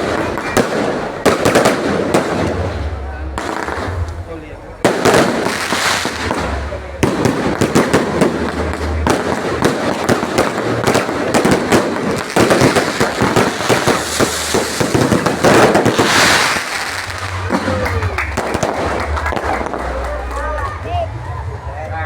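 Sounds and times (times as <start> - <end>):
fireworks bangs and crackles: 0.0 - 21.6
firework hissing rush: 5.0 - 17.6.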